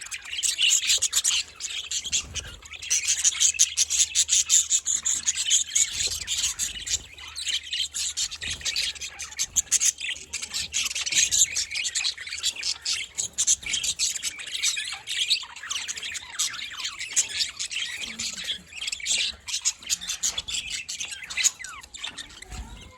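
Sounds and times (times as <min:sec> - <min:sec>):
flock of budgerigars chirping: 0:00.0 - 0:22.9.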